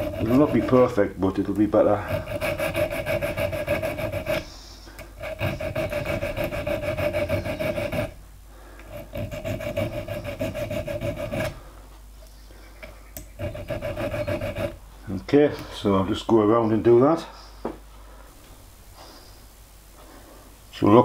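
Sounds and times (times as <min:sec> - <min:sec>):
needle file rasping on metal: 0:00.0 - 0:01.1, 0:01.8 - 0:08.2, 0:08.8 - 0:11.6, 0:13.2 - 0:14.8.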